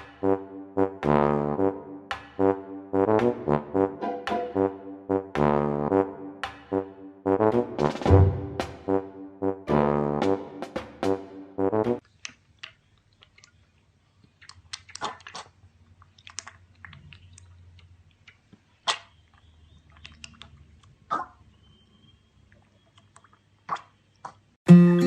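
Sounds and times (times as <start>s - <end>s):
brass tune: 0.0s - 12.0s
animal chewing and crunching: 12.0s - 21.9s.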